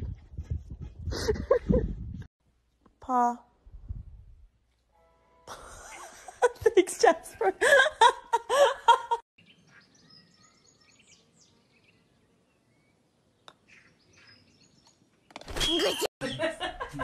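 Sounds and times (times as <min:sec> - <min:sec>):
small birds chirping: 0:09.4 - 0:16.4.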